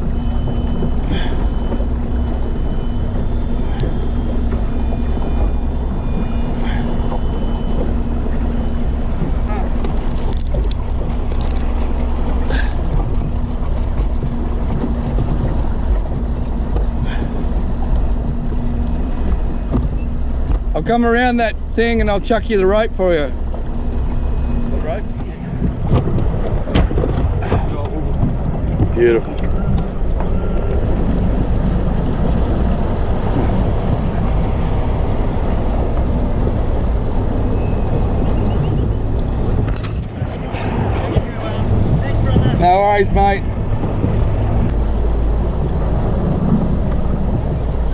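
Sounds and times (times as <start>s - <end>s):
boat motor rumbling: 0.0s - 47.9s
wind noise: 23.3s - 47.9s.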